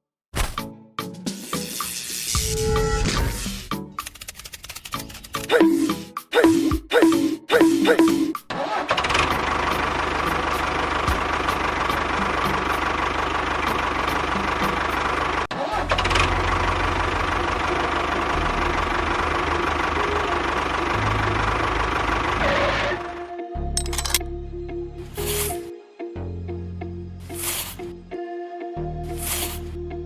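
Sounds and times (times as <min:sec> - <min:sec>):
small engine running: 0:08.6 - 0:24.2, 0:29.2 - 0:29.7.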